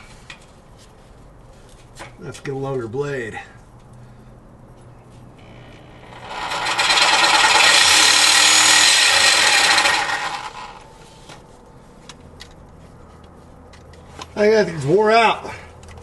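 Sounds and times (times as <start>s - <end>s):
reciprocating saw cutting metal pipe: 5.4s - 10.8s.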